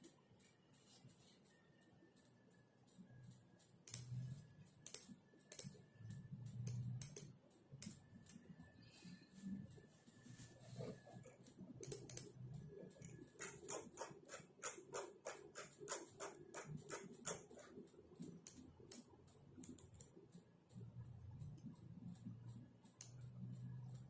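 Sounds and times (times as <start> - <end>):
typing on a computer keyboard: 0.0 - 24.0.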